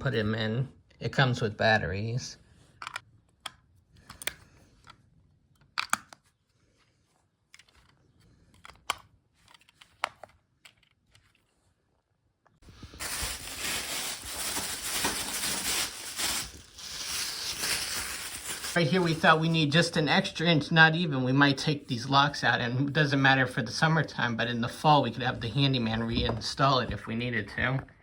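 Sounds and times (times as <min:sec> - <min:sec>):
small plastic clicks and knocks: 0:02.8 - 0:06.3.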